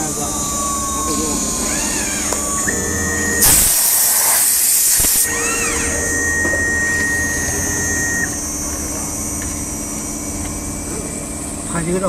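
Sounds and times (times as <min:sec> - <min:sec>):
machine hum with high whine: 0:00.0 - 0:12.0
compressed air hiss: 0:03.4 - 0:05.3.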